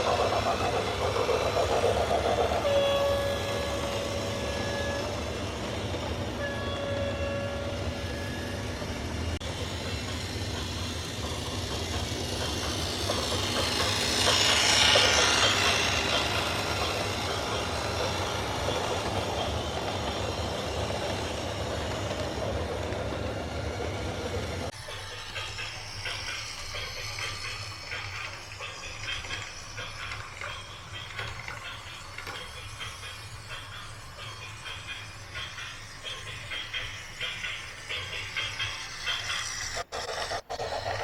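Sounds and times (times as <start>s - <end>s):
horn blasts: 2.6s - 5.2s, 6.4s - 8.4s.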